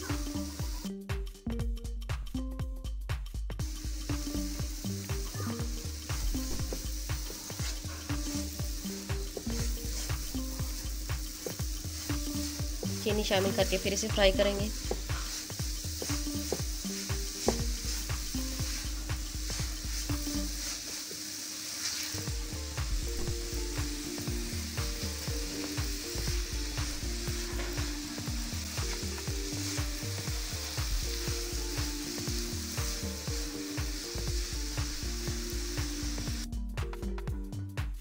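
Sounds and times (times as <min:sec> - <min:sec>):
noodles sizzling in butter: 0:00.0 - 0:00.9, 0:03.6 - 0:36.5
background music with steady beat: 0:00.0 - 0:38.0
spatula scraping a pan: 0:14.7 - 0:22.2, 0:24.4 - 0:33.0.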